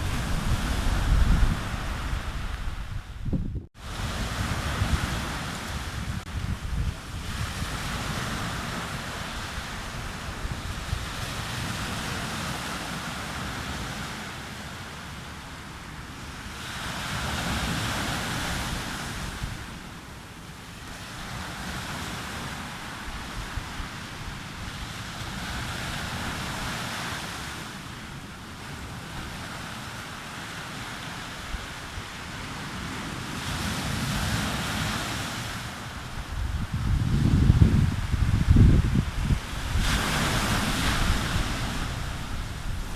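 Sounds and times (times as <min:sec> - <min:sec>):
wind on microphone: 0:00.0 - 0:14.2, 0:21.0 - 0:27.5, 0:31.2 - 0:42.9
surf breaking on a beach: 0:00.0 - 0:42.9.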